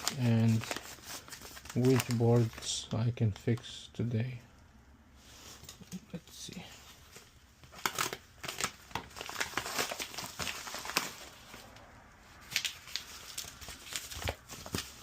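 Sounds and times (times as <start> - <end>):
packaging being torn open: 7.6 - 11.4, 12.4 - 15.0.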